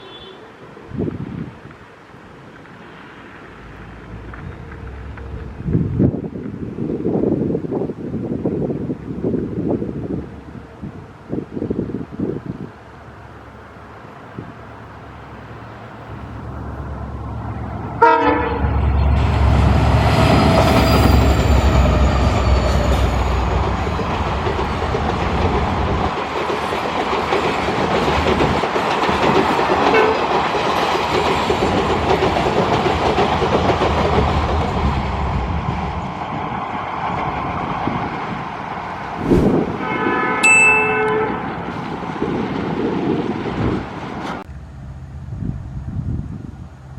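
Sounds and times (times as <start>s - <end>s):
train horn blast: 18.0s - 18.8s, 39.7s - 41.6s
train wheel clatter: 20.2s - 35.1s.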